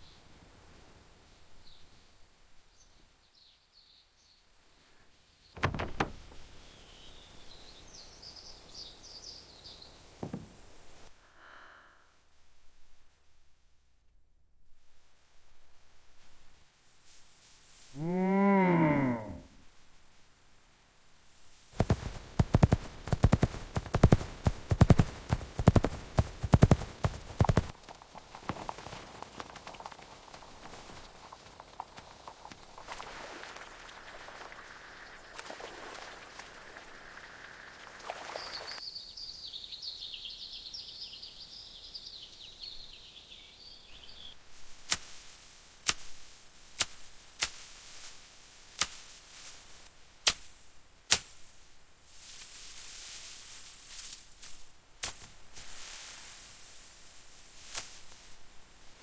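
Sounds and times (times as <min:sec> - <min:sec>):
small birds chirping: 0:05.4 - 0:11.1, 0:21.8 - 0:44.4
sharp knocks: 0:05.6 - 0:06.4, 0:10.2 - 0:10.6
horse hooves clip-clopping: 0:21.6 - 0:38.8.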